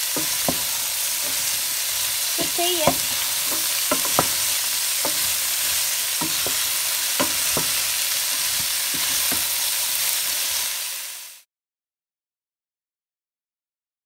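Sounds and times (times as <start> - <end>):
wooden spatula scraping a pan: 0.0 - 10.5
vegetables sizzling in a pan: 0.0 - 11.5.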